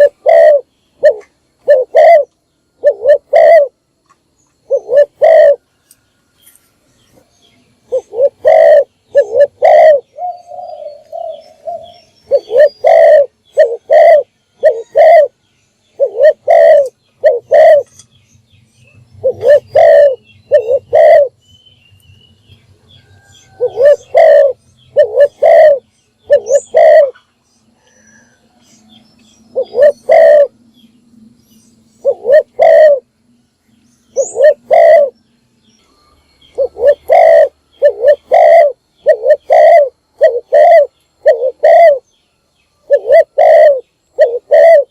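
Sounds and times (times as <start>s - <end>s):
dove cooing: 0.0s - 3.8s, 4.6s - 5.7s, 7.8s - 15.4s, 16.0s - 17.9s, 19.2s - 21.4s, 23.2s - 28.3s, 29.5s - 30.6s, 32.0s - 33.1s, 34.1s - 35.2s, 36.6s - 42.0s, 42.8s - 44.9s.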